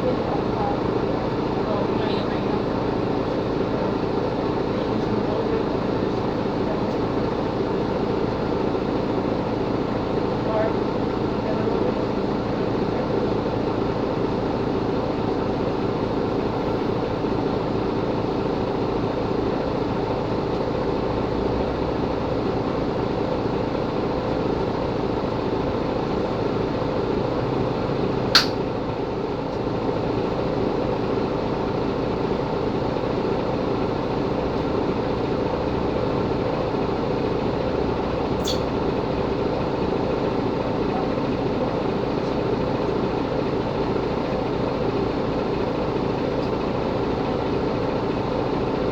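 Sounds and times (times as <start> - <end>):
bus engine drone: 0.0 - 48.9
sharp click: 28.4 - 28.6, 38.4 - 38.7.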